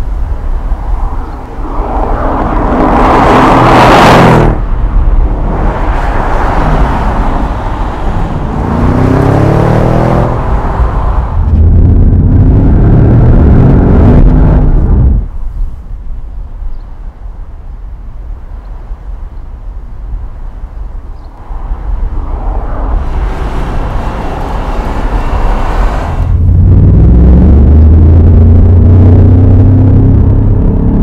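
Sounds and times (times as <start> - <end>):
car passing rush: 0.0 - 15.8, 20.8 - 31.0
car engine accelerating: 1.2 - 15.3, 21.6 - 31.0.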